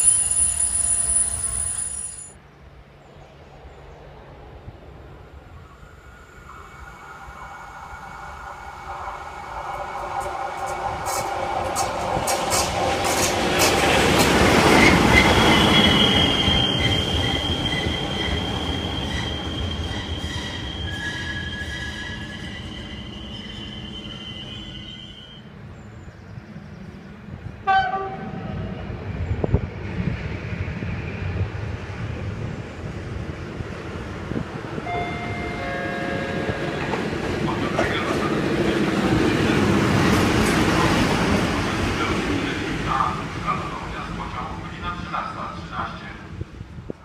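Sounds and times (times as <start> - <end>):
short sharp tone: 0.0 - 2.3
train wheels squealing on rails: 0.0 - 2.4, 5.5 - 25.8
diesel locomotive rumbling: 26.8 - 47.0.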